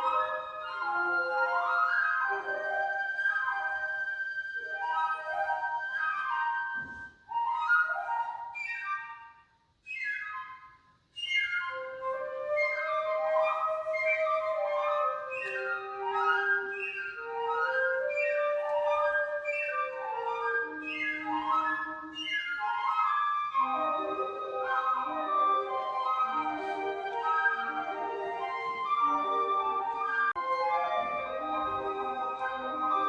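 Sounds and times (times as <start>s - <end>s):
flute: 0.0s - 33.0s
piccolo: 0.0s - 33.0s
alto flute sustaining low notes: 11.3s - 33.0s.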